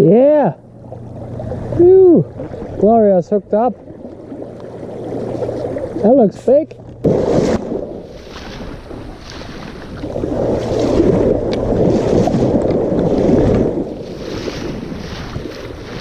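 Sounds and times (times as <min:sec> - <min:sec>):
river water splashing: 0:00.6 - 0:16.0
wind on microphone: 0:07.0 - 0:16.0.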